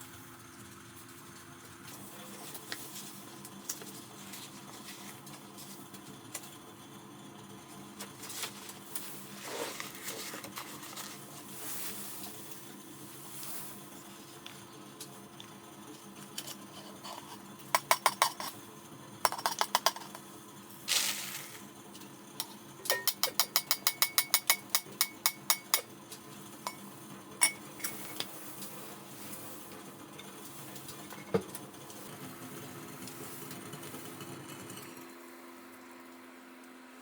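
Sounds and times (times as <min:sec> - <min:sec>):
faint steady hum: 0:01.8 - 0:33.6
sharp clicks of kitchenware: 0:17.8 - 0:18.6, 0:19.3 - 0:20.2, 0:22.4 - 0:25.9.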